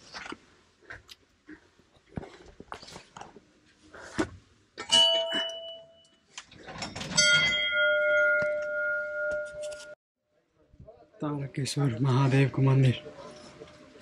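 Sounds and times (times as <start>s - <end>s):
temple bells clanging: 4.9s - 6.0s, 7.0s - 10.0s.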